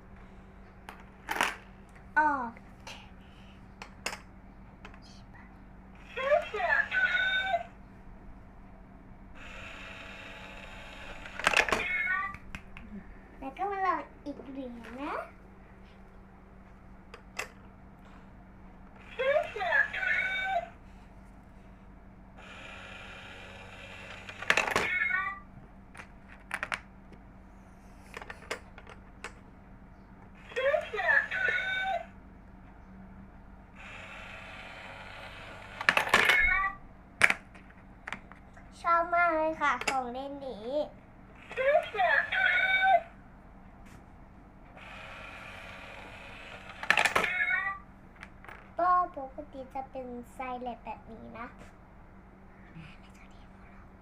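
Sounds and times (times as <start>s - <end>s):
small toy motor whirring: 9.4s - 12.0s, 22.4s - 25.2s, 30.4s - 32.1s, 33.8s - 36.5s, 44.8s - 47.6s.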